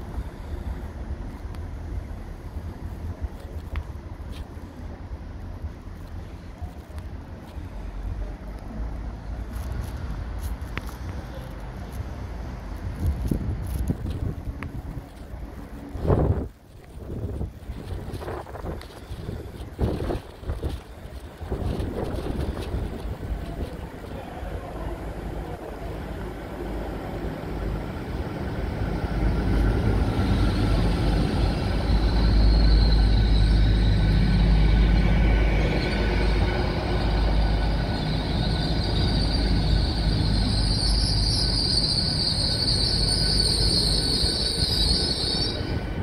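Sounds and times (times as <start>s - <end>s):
train rumbling past: 0.0s - 46.0s
train brake and wheel squeal: 29.0s - 46.0s.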